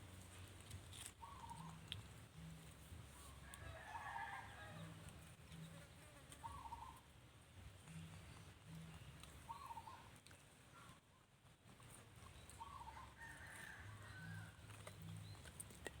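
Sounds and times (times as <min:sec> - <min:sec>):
faint animal chirping: 0:06.4 - 0:07.1, 0:09.4 - 0:10.1.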